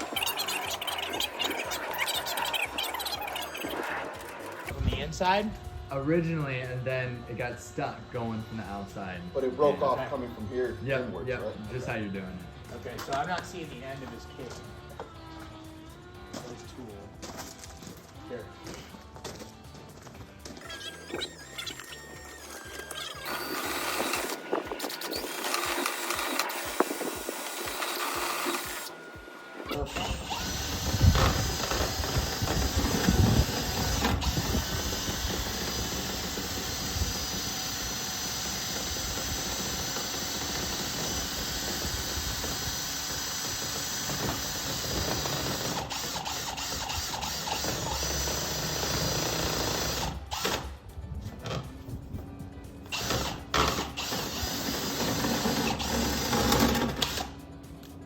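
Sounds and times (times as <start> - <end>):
power drill whirring rattle: 0.0 - 5.2, 20.5 - 50.8, 52.9 - 57.5.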